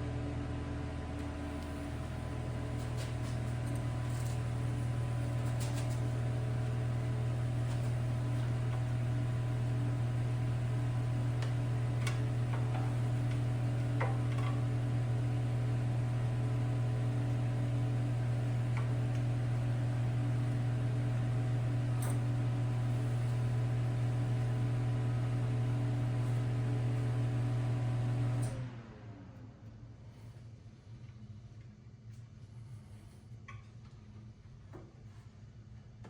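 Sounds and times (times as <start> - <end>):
machine hum: 0.0 - 28.4.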